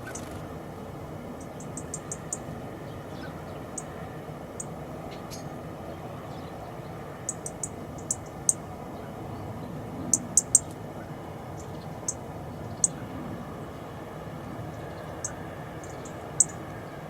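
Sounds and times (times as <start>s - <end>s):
small birds chirping: 0.0s - 17.0s
steady low background noise: 0.0s - 17.0s.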